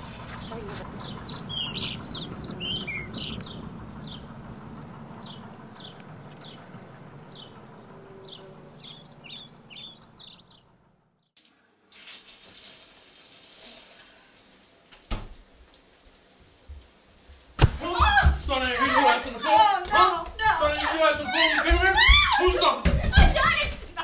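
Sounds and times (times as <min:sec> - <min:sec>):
small birds chirping: 0:00.0 - 0:11.4
low outdoor hum: 0:00.0 - 0:11.9
thump: 0:17.6 - 0:17.8.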